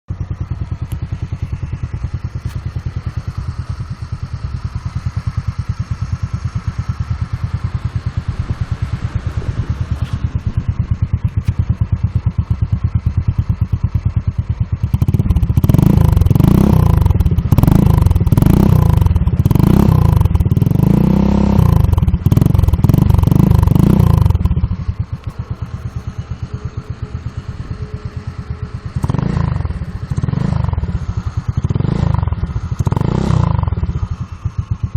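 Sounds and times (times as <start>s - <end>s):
motorcycle engine idling: 0.0s - 34.9s
engine revving in throttle blips: 0.1s - 34.9s.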